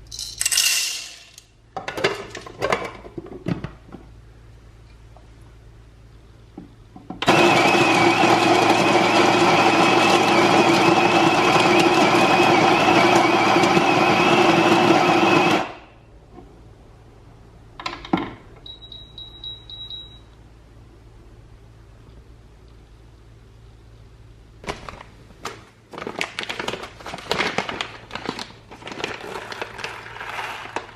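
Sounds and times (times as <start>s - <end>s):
coffee grinder motor running: 7.2s - 15.8s.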